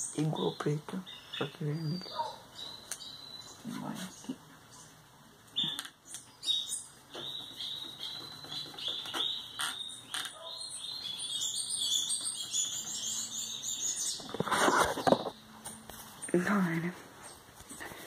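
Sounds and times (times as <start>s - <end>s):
small bird chirping and trilling: 0.0s - 15.5s
rustle: 12.1s - 18.0s.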